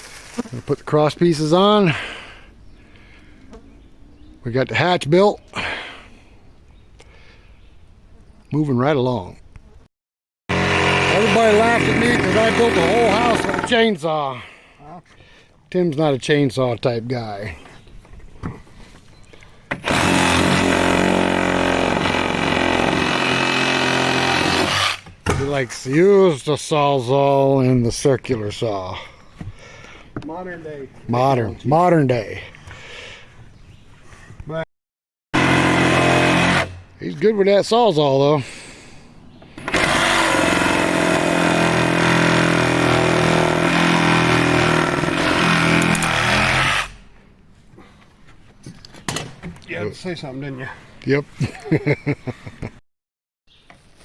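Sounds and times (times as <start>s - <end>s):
power saw running: 10.5s - 13.8s, 19.8s - 25.0s
reciprocating saw cutting wood: 10.5s - 13.8s, 19.7s - 25.1s, 35.4s - 36.8s, 39.6s - 47.0s.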